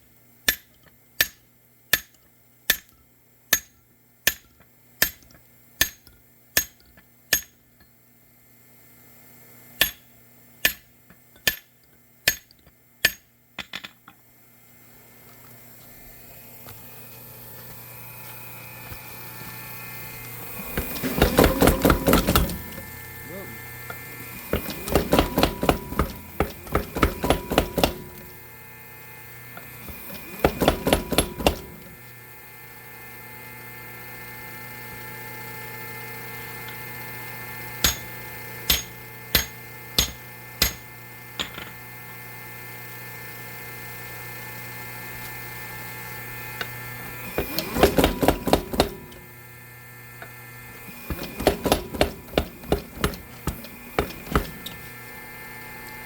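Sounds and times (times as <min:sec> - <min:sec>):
power hammer pounding steel: 0:10.6 - 0:11.7, 0:20.5 - 0:28.4, 0:29.6 - 0:31.9, 0:37.8 - 0:41.0, 0:47.4 - 0:49.2, 0:50.9 - 0:54.8
motor humming: 0:14.9 - 0:56.0.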